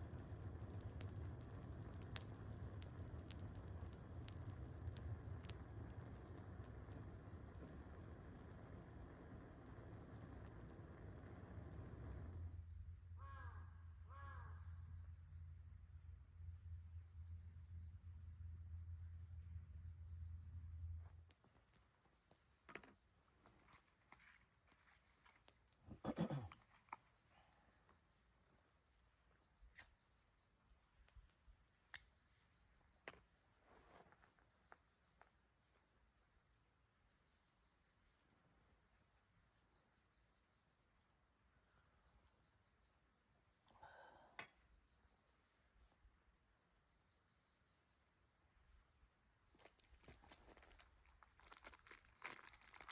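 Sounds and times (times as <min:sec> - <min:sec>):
insects chirring: 0:00.0 - 0:52.9.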